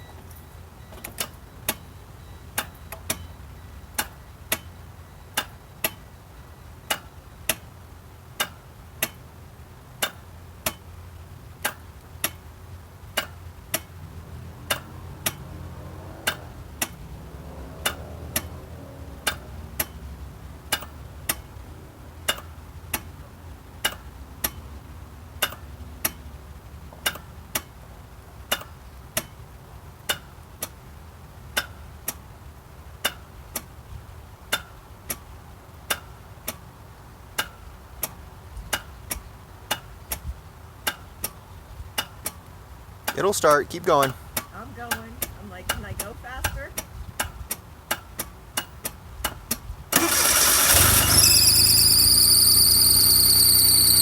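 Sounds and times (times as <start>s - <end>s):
relay clicking: 49.3s - 54.0s.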